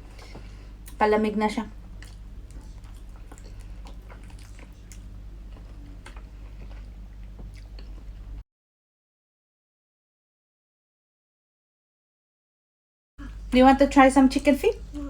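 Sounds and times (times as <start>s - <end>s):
person chewing sticky food: 1.8s - 8.4s.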